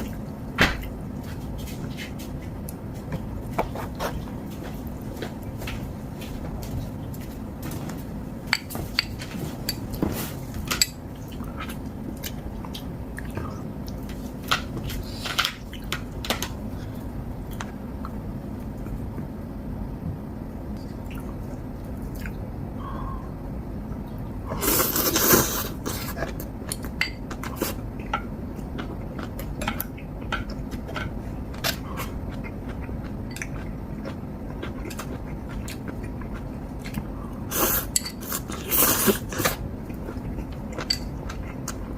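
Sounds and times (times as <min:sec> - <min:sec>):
chewing: 0:25.1 - 0:41.9
utensils clinking against bowls: 0:37.9 - 0:38.5.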